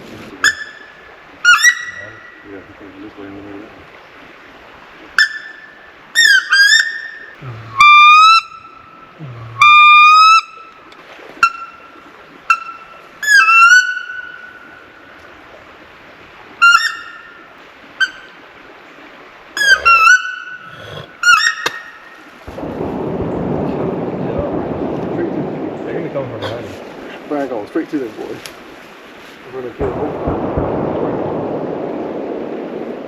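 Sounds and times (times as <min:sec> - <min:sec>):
duck call squeals: 0:00.4 - 0:02.5, 0:05.2 - 0:09.0, 0:09.6 - 0:10.7, 0:11.4 - 0:14.8, 0:16.6 - 0:17.4, 0:19.6 - 0:22.0.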